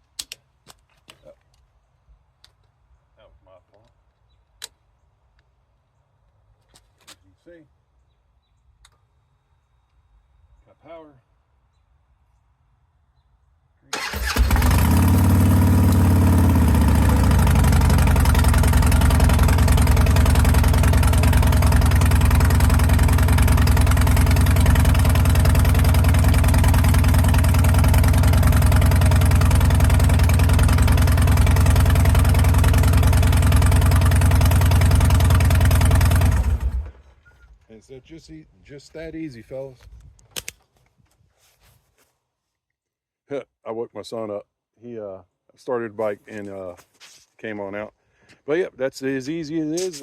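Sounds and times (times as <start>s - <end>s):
motorcycle engine starting and idling: 13.9s - 37.3s.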